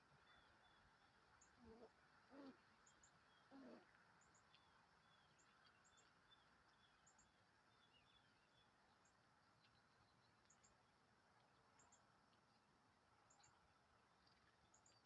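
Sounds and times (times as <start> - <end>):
small birds chirping: 0.2 - 10.9.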